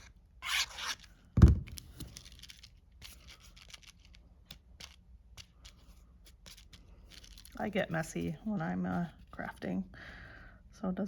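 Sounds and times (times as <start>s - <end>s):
dull thump on table: 1.4s - 1.8s.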